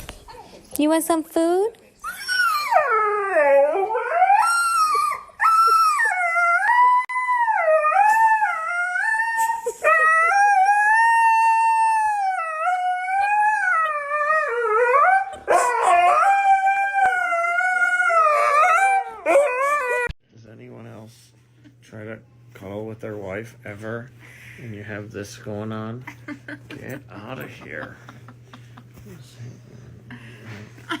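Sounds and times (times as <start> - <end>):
dog howling: 2.0 - 20.1.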